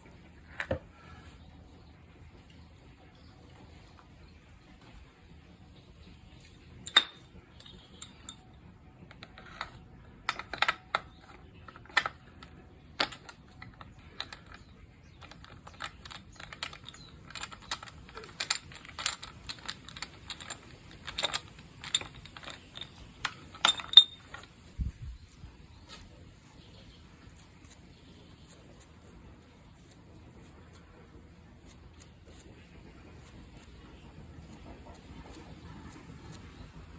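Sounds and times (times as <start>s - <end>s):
metal tools clicking and clinking: 6.8s - 29.1s.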